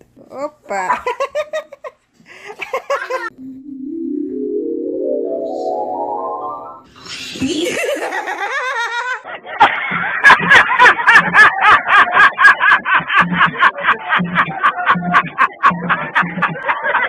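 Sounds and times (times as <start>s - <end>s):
person laughing hard: 2.5s - 3.3s, 7.3s - 17.0s.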